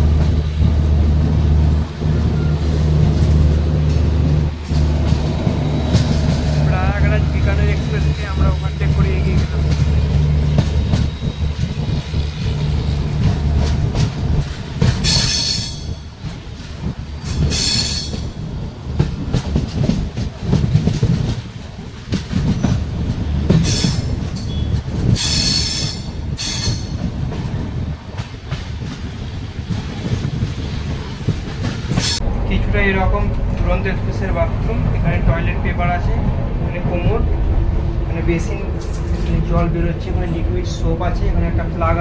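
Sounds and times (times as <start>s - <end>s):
train wheels rumbling on track: 0.0s - 42.0s
high-pitched wheel squeals: 23.7s - 27.0s.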